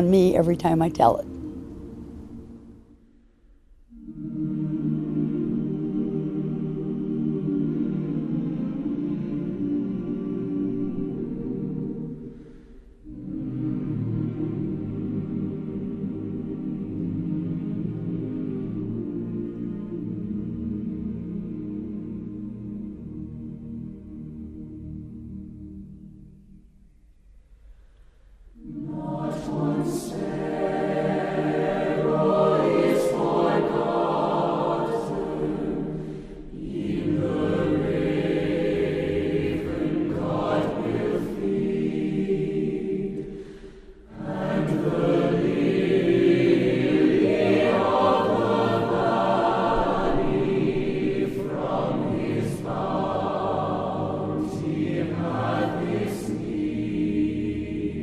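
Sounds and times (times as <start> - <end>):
choir singing: 0.0 - 3.1, 3.8 - 26.4, 28.4 - 58.0
singers breathing: 12.1 - 13.2, 27.6 - 28.6, 35.8 - 36.6, 43.2 - 44.1.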